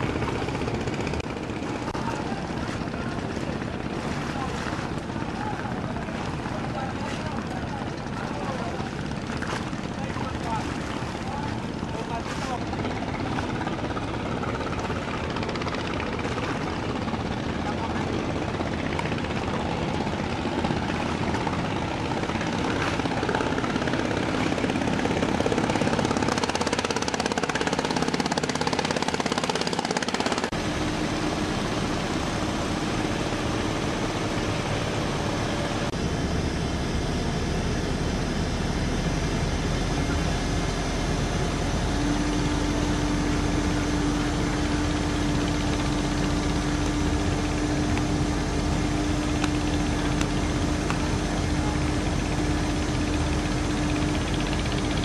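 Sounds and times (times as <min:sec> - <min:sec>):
engine and machinery noise: 0:00.0 - 0:55.0
steady hum: 0:29.7 - 0:55.0.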